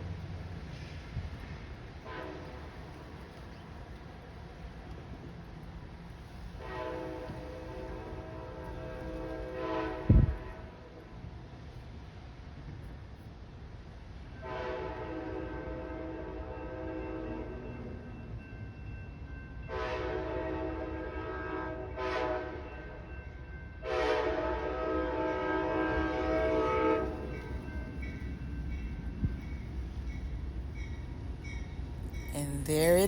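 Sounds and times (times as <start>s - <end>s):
train horn chord: 2.0s - 2.8s, 6.6s - 11.0s, 14.4s - 17.6s, 19.6s - 22.7s, 23.8s - 27.6s.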